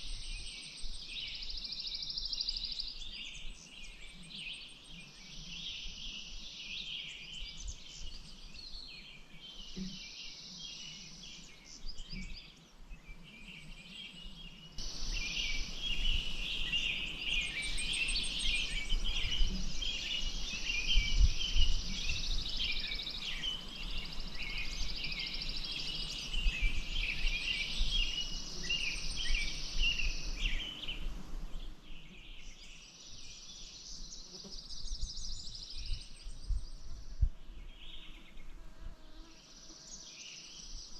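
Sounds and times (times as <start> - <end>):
small birds chirping: 0.0 - 40.9
steady high hiss: 14.8 - 32.0.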